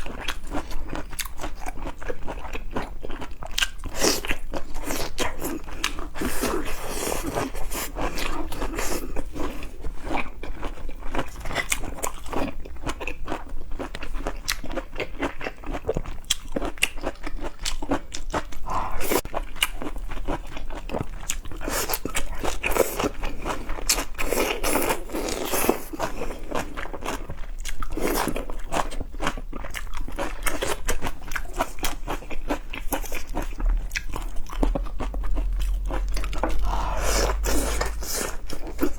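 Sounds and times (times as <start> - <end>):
person chewing crunchy food: 0.0 - 38.9.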